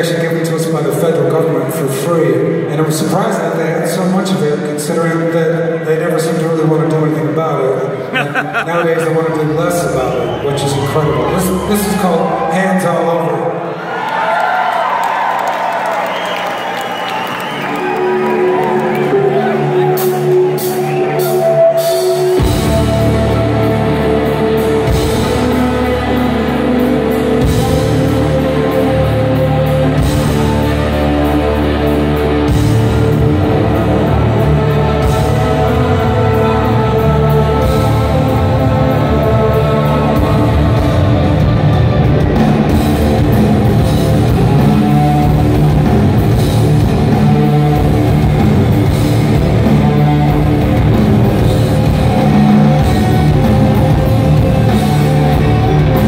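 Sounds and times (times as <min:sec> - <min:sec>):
distorted electric guitars: 0:17.9 - 0:56.0
bass guitar: 0:19.1 - 0:56.0
drum kit: 0:20.1 - 0:56.0.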